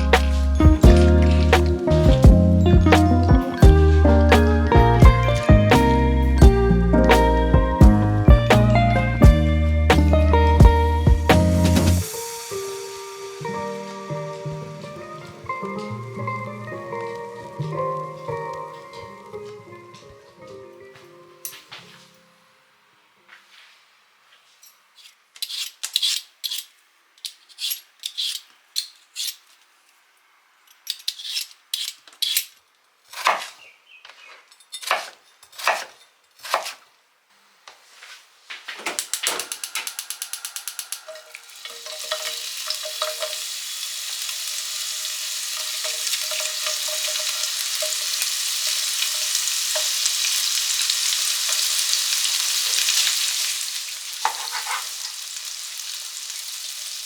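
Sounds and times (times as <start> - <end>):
kitchen utensils clinking: 0.0 - 3.6, 30.7 - 32.6, 38.8 - 55.4
food frying in a pan: 39.1 - 57.0.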